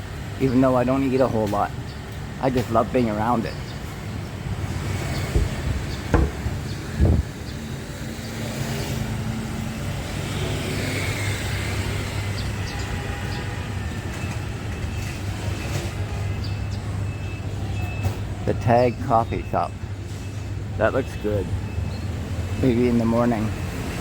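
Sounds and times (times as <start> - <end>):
street traffic engines: 0.0 - 24.0
short thumps: 5.0 - 7.3.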